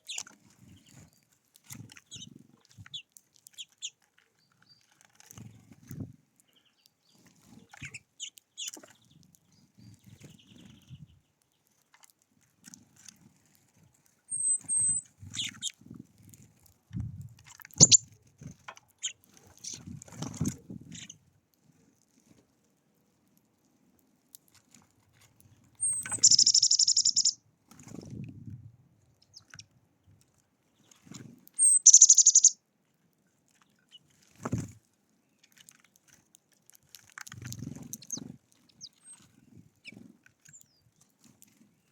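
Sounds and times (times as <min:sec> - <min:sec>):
songbirds chirping: 0:00.0 - 0:12.0, 0:14.3 - 0:15.9, 0:17.7 - 0:18.1, 0:25.4 - 0:27.4, 0:29.1 - 0:32.6
buzzy bird trills: 0:17.8 - 0:18.0, 0:25.8 - 0:27.4, 0:31.6 - 0:32.6.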